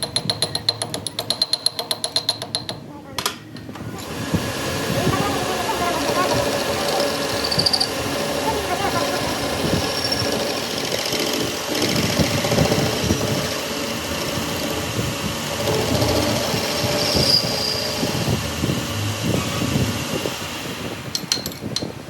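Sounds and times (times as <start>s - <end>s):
heavy machine running with clatter: 4.0s - 22.0s.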